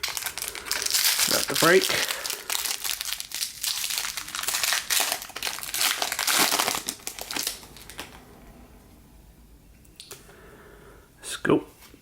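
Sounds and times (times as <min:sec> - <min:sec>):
foil wrapper crinkling: 0:00.0 - 0:08.1.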